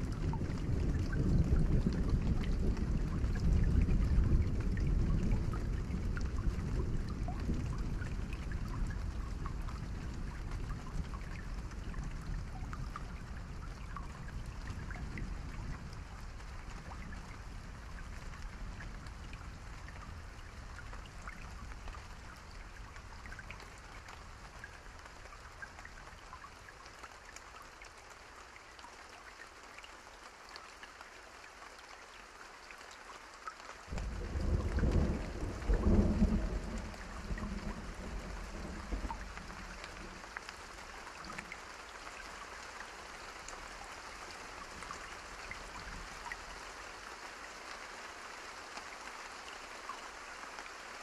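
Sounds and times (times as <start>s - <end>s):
deep thunder rumble: 0.0s - 8.4s, 33.9s - 40.2s
rain drops pattering: 0.0s - 51.0s.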